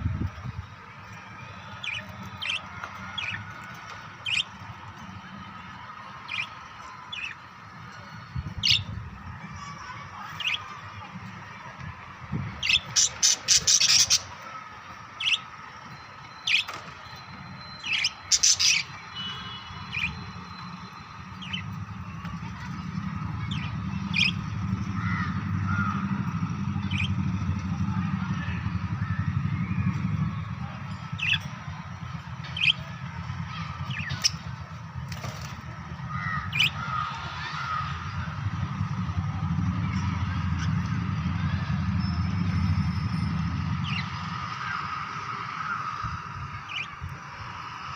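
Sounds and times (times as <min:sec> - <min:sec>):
lovebirds squawking and chirping: 0:01.8 - 0:04.6, 0:08.4 - 0:08.9, 0:12.6 - 0:14.4, 0:15.2 - 0:15.5, 0:16.2 - 0:21.8, 0:23.4 - 0:26.1, 0:32.5 - 0:32.9, 0:33.5 - 0:35.4, 0:36.1 - 0:37.8.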